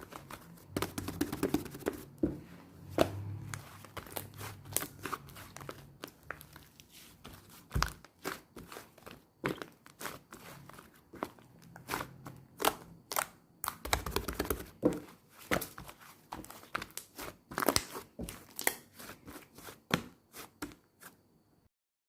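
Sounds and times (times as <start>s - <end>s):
slime squishing and crackling: 3.4s - 20.8s.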